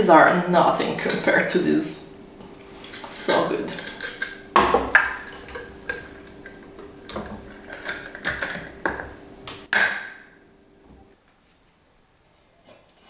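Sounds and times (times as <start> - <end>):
faint steady hum: 0.0 - 12.5
dishes clattering: 1.0 - 1.6, 2.5 - 10.5
dishes clinking and knocking: 2.8 - 10.4.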